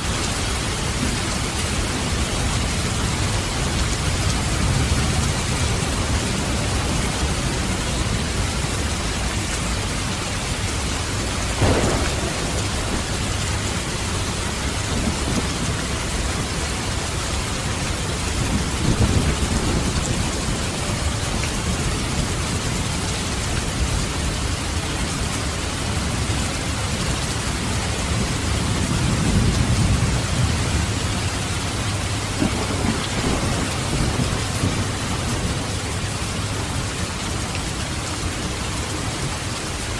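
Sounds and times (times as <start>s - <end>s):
steady rain: 0.0s - 39.9s
thunder crack and rumbles: 11.4s - 24.6s, 28.0s - 37.0s.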